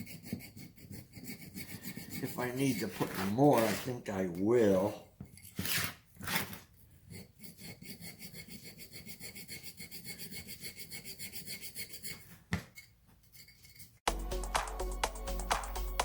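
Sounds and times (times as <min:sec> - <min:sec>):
fast rubbing strokes on metal: 0:00.0 - 0:04.9, 0:07.1 - 0:14.0.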